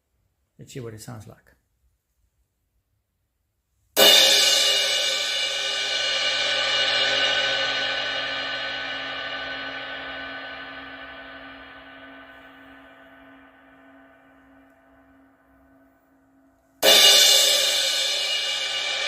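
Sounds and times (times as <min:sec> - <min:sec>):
crash cymbal struck and ringing: 0:04.0 - 0:16.0, 0:16.8 - 0:19.0.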